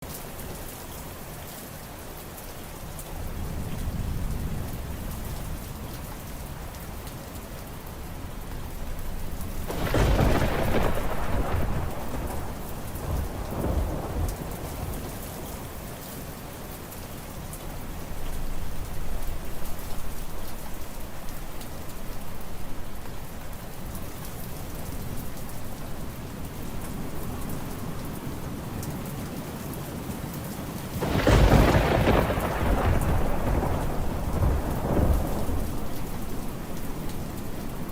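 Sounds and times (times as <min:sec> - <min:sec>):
steady rain: 0:00.0 - 0:37.9
thunder clap and rumbles: 0:08.0 - 0:15.9, 0:31.0 - 0:37.9.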